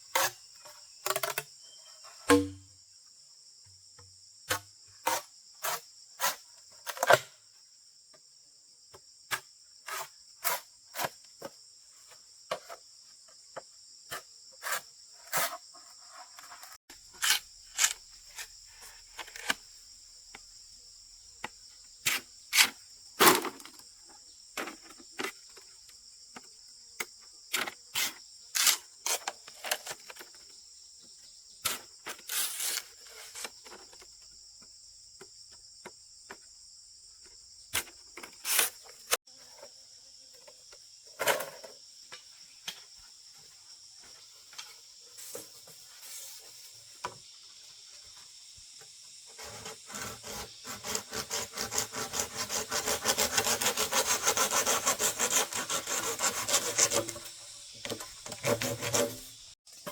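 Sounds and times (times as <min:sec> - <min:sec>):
high-pitched insect chorus: 0:00.0 - 0:59.9
sharp knocks: 0:02.3 - 0:02.6.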